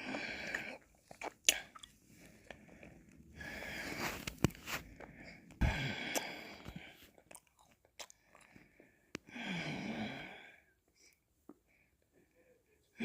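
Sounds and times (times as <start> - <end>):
breathing: 2.1 - 7.1, 8.1 - 12.7.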